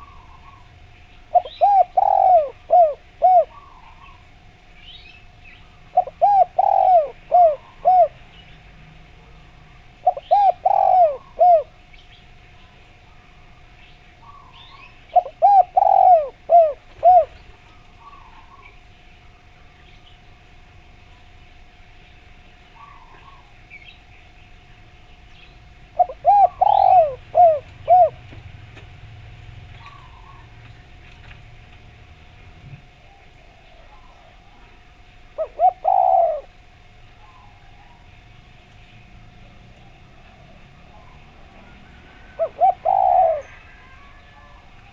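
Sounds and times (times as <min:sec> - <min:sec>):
dove cooing: 0:00.0 - 0:04.5, 0:05.7 - 0:08.4, 0:09.2 - 0:12.0, 0:14.2 - 0:18.8, 0:22.8 - 0:23.6, 0:25.8 - 0:31.6, 0:32.6 - 0:38.2, 0:39.0 - 0:44.9
small birds chirping: 0:00.0 - 0:08.8, 0:09.4 - 0:20.4, 0:21.0 - 0:28.5, 0:29.3 - 0:31.5
faint steady tone: 0:29.1 - 0:44.9.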